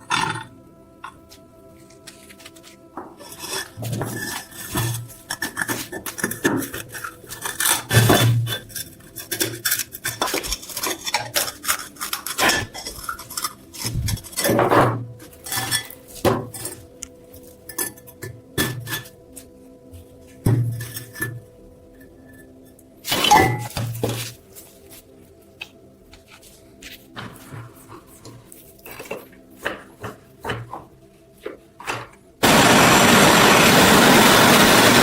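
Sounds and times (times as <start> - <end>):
tool scraping and clinking on metal: 0.0 - 19.2.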